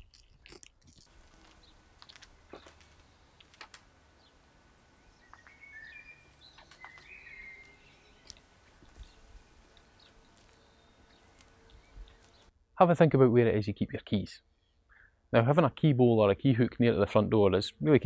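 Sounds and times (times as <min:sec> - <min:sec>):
faint bird chirps: 0:04.2 - 0:12.5, 0:14.5 - 0:15.2.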